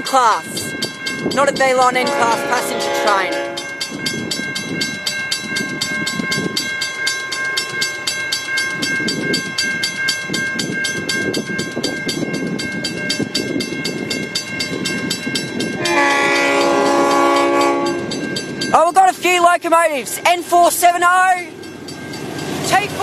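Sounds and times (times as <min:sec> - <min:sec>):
diesel locomotive rumble: 0:00.0 - 0:23.0
mechanical crossing bell ringing: 0:00.0 - 0:23.0
locomotive horn: 0:02.0 - 0:03.7, 0:15.8 - 0:18.1.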